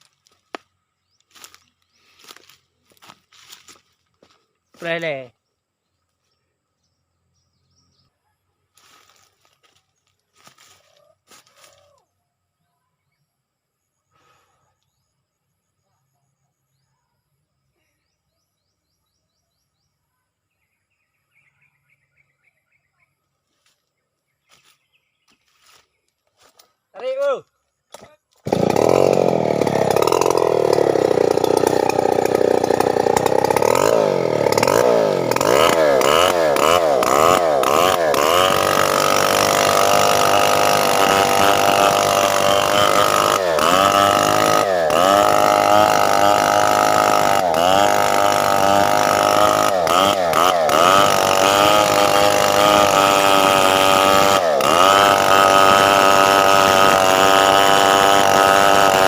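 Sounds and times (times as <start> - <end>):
chainsaw cutting a log: 27.9 - 59.0.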